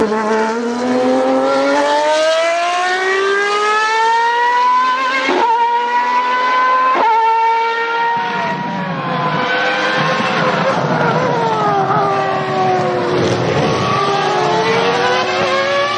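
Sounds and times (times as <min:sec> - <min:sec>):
racing car engine revving: 0:00.0 - 0:15.9.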